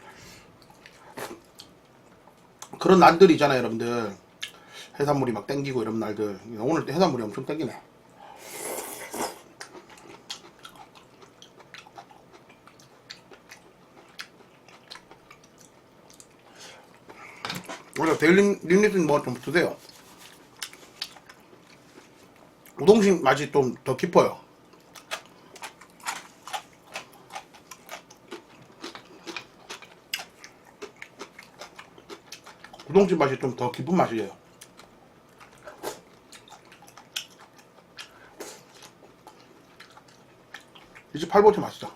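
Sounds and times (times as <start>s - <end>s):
person chewing food: 0.5s - 2.8s, 8.6s - 18.0s, 19.8s - 22.8s, 24.6s - 32.9s, 34.5s - 41.1s.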